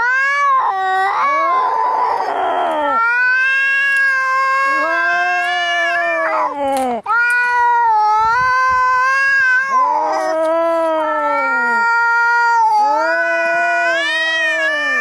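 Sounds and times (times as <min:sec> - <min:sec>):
cat yowling: 0:00.0 - 0:15.0.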